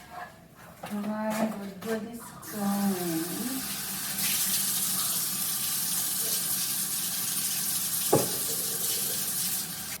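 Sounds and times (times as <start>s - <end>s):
tap water running into sink: 3.2s - 10.0s.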